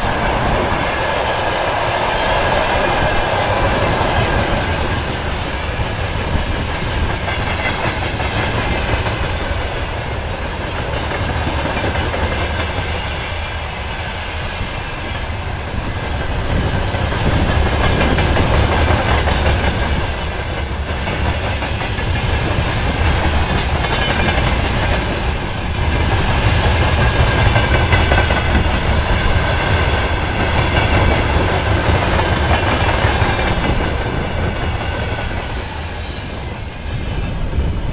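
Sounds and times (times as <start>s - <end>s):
clickety-clack over rail joints: 0.0s - 35.9s
freight train wheels rumbling: 0.0s - 37.9s
high wheel squeal: 34.2s - 37.5s.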